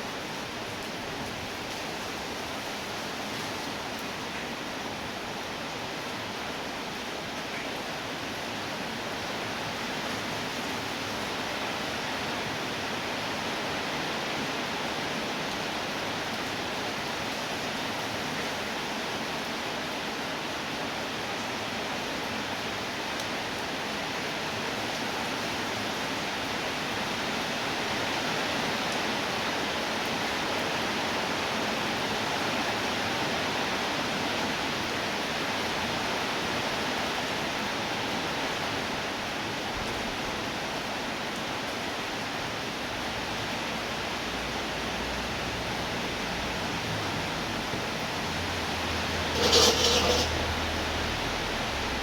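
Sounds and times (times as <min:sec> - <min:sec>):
steady rainfall: 0:00.0 - 0:52.0.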